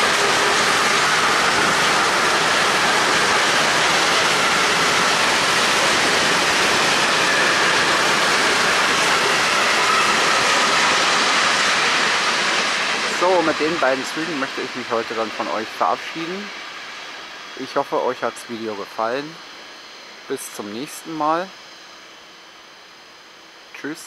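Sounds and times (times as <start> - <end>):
freight train wheels on rails: 0.0 - 19.1.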